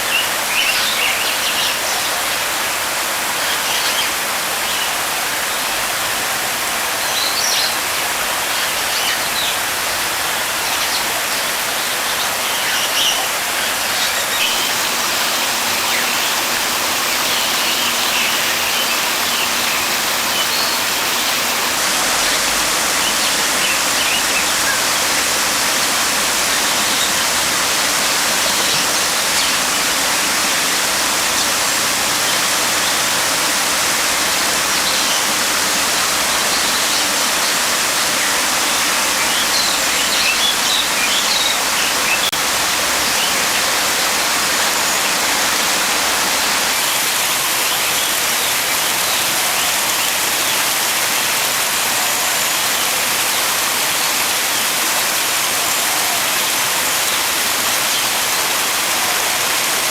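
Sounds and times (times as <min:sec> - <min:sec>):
rushing water: 0:00.0 - 0:59.9
small birds chirping: 0:14.3 - 0:42.3.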